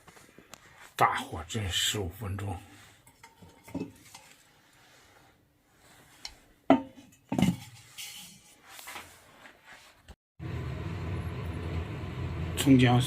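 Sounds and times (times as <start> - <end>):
dishes clattering and clinking: 3.0 - 4.4, 6.7 - 8.4.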